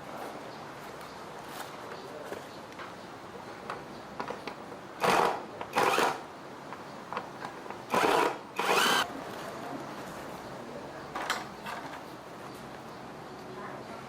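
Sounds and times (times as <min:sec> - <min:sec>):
small power tool whirring: 0:05.0 - 0:06.2, 0:07.9 - 0:09.1.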